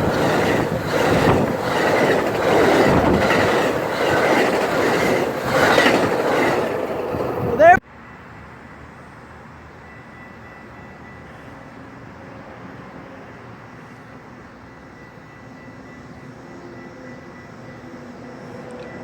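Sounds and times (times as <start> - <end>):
distant engine drone: 0.0 - 7.8
steady rumble: 0.0 - 7.8.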